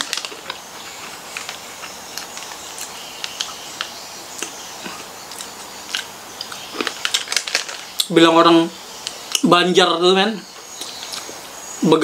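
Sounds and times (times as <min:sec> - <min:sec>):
steady hiss: 0:00.0 - 0:12.0
mouth chewing: 0:10.8 - 0:11.4.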